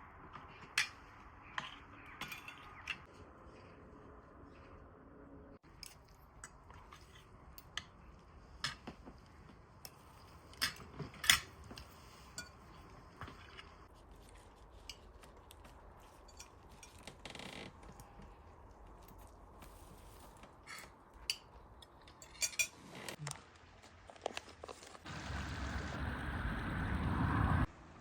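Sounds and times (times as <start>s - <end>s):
cutlery clinking on dishes: 22.1s - 22.8s.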